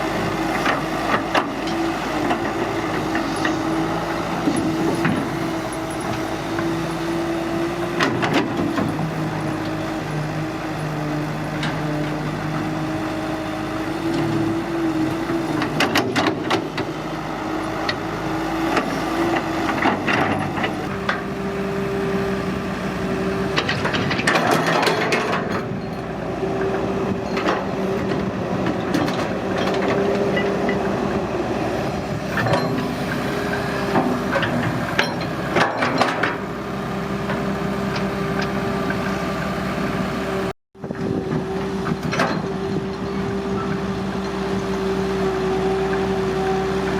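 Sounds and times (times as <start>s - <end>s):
excavator diesel engine running: 0.0s - 46.9s
machine clanks and knocks: 23.5s - 26.2s, 33.9s - 36.4s, 41.3s - 43.0s.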